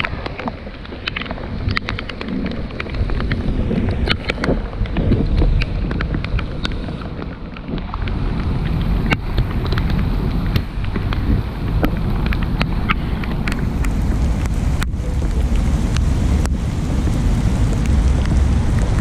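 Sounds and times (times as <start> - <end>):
raindrops tapping on camera: 0.0 - 19.0
wind rumble on microphone: 0.0 - 19.0.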